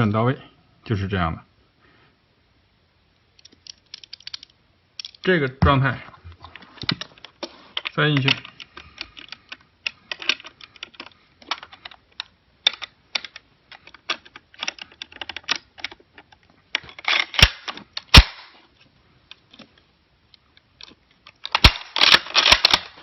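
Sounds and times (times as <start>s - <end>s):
rifle bolt clicking and scraping: 3.4s - 5.2s, 6.4s - 18.3s, 20.7s - 23.0s
sharp metallic snaps: 17.1s - 18.6s.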